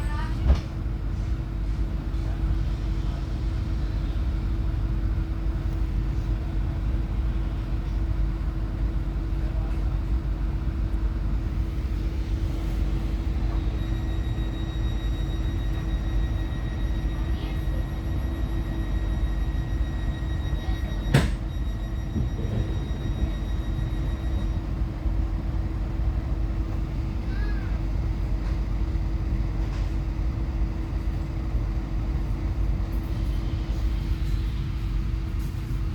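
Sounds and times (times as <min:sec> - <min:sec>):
train rumble inside carriage: 0:00.0 - 0:35.9.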